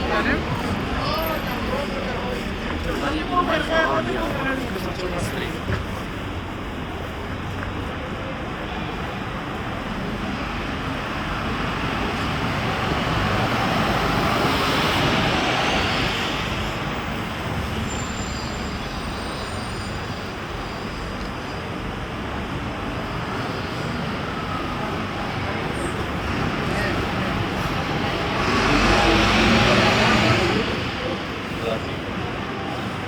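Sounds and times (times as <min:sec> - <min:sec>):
street traffic noise: 0:00.0 - 0:33.0.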